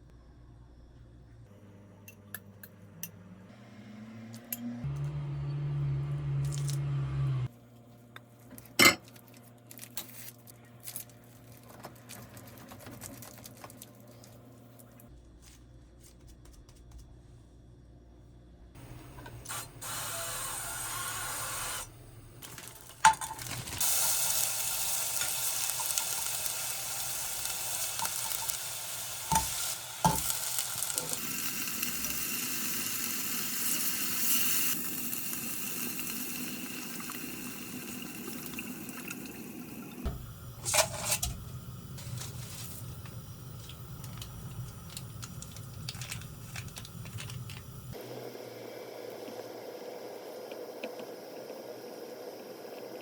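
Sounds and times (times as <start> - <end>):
kitchen handling: 22.4 - 23.8, 40.1 - 42.8
food sizzling in a frying pan: 22.7 - 39.4.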